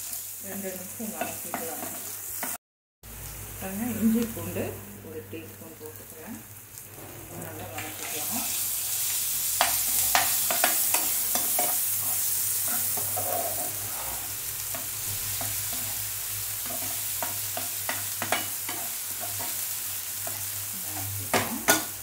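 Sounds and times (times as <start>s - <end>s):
food sizzling in hot oil: 0.0s - 22.0s
spatula scraping and tapping pan: 9.6s - 13.8s, 16.6s - 19.6s, 20.2s - 22.0s.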